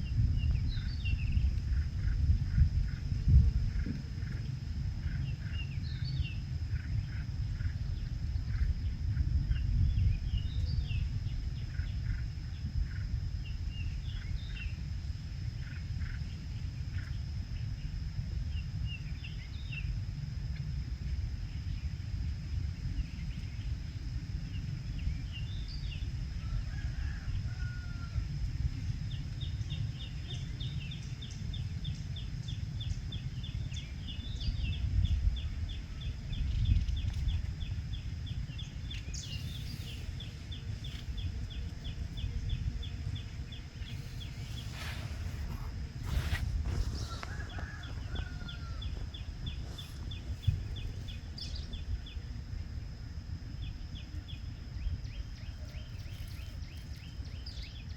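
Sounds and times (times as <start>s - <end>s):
thin high whine: 0.0s - 57.9s
wind rumble on microphone: 0.0s - 57.9s.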